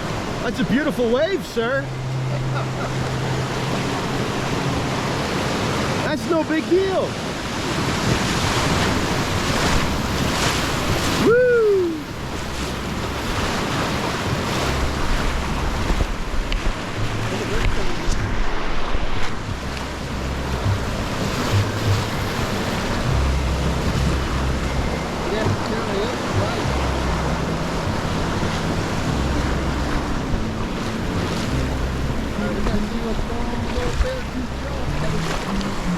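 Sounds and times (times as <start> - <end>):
river rapid rushing: 0.0 - 35.9
wind buffeting microphone: 7.2 - 35.9
short rising and falling cry: 11.1 - 12.1.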